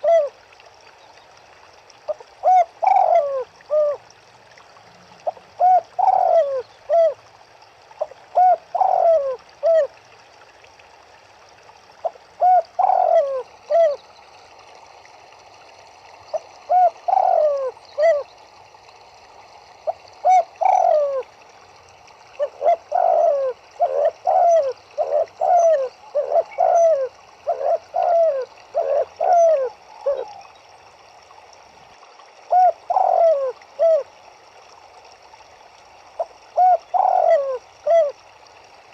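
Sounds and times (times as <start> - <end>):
turtledoves cooing: 2.4 - 4.0, 5.2 - 7.2, 8.0 - 9.9, 12.4 - 14.0, 16.3 - 18.2, 20.2 - 21.3, 22.4 - 30.4, 32.5 - 34.0, 36.6 - 38.2.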